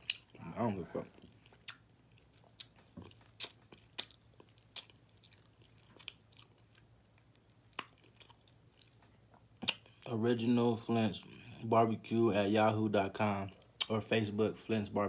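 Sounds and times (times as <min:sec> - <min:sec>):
man chewing with wet mouth clicks: 0:00.0 - 0:10.1.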